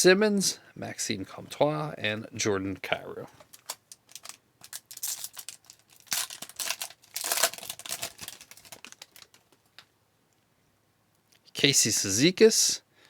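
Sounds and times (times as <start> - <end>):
foil wrapper crinkling and tearing: 3.4 - 9.6.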